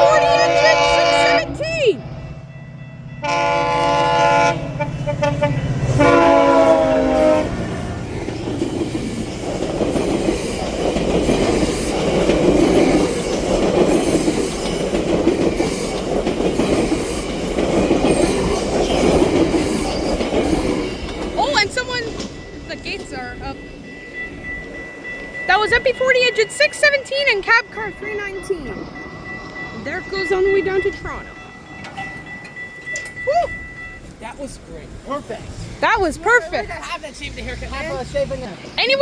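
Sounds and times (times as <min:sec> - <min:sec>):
locomotive horn blasts: 0:00.0 - 0:01.8, 0:03.2 - 0:07.8
train wheels clattering: 0:03.2 - 0:39.0.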